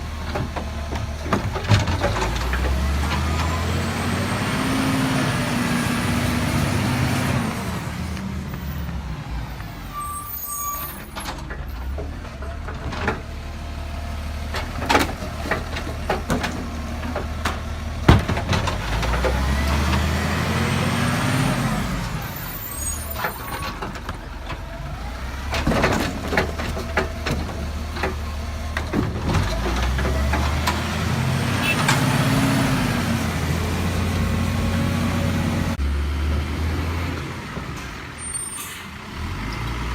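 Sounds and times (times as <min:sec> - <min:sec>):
clunks and clatters: 0:00.0 - 0:04.2, 0:10.9 - 0:20.7, 0:22.9 - 0:32.6
garbage truck engine revving: 0:00.0 - 0:08.5, 0:13.2 - 0:38.2.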